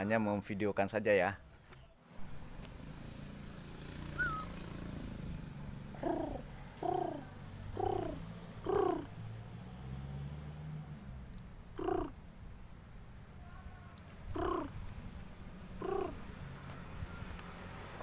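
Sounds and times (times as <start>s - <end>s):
dove cooing: 4.0s - 4.7s, 5.9s - 9.2s, 11.8s - 12.2s, 14.3s - 14.8s, 15.8s - 16.2s
high bird chirp: 4.1s - 4.6s.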